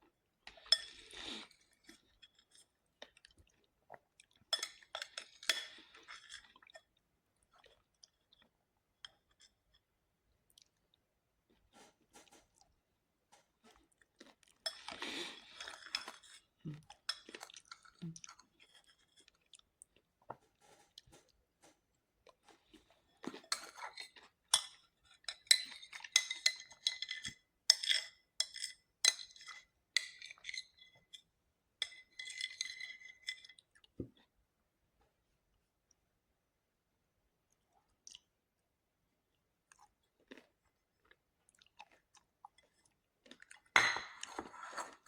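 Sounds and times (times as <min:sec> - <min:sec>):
chewing and crunching: 0:11.7 - 0:27.4, 0:39.3 - 0:45.0
cutlery clinking against dishes: 0:23.4 - 0:31.2, 0:31.8 - 0:33.6.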